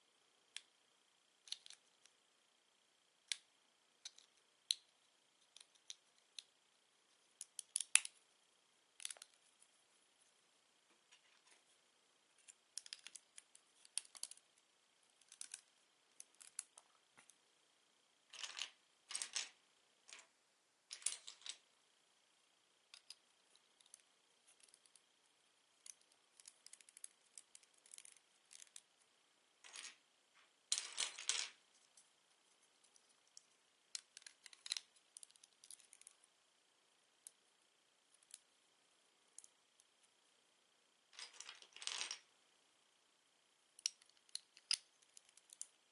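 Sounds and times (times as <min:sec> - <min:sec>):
plastic bricks clicking: 0:12.8 - 0:13.2, 0:43.8 - 0:45.7.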